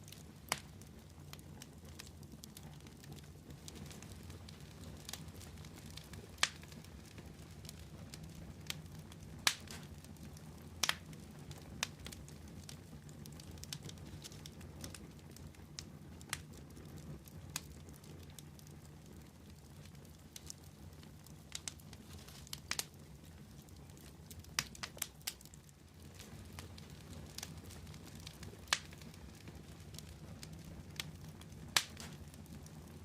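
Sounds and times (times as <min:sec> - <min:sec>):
fire crackling and popping: 0:00.0 - 0:33.0.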